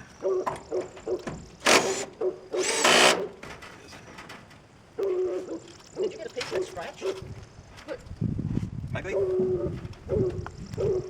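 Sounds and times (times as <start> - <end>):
power drill driving screws into metal: 1.6 - 3.5.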